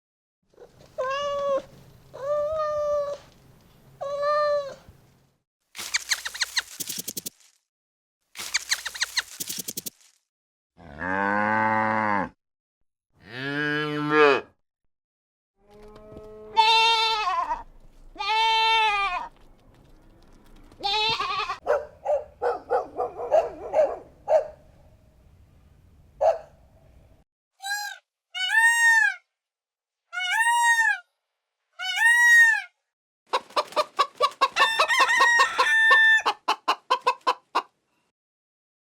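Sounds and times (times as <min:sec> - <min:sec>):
cat meowing: 0:04.0 - 0:04.8
animal bleating: 0:15.7 - 0:17.6, 0:18.2 - 0:19.3, 0:20.8 - 0:21.6.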